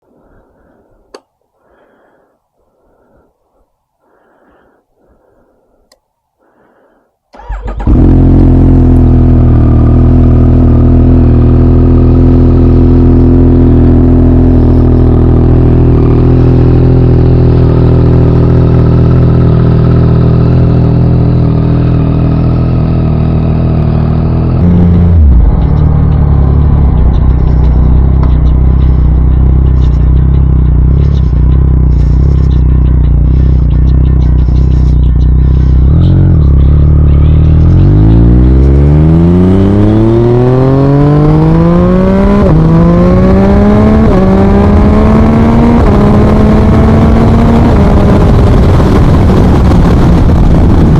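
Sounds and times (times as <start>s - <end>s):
motorcycle engine idling: 6.5s - 38.6s.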